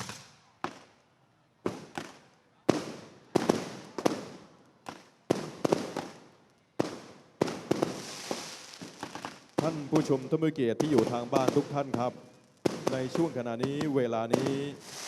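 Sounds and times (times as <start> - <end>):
fireworks bangs with echo: 0.0 - 0.9, 1.6 - 15.0.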